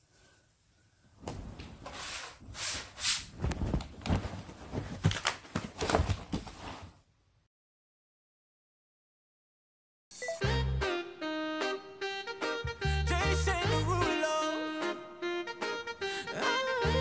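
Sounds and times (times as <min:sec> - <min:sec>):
bedding and papers rustling: 0:01.2 - 0:07.1.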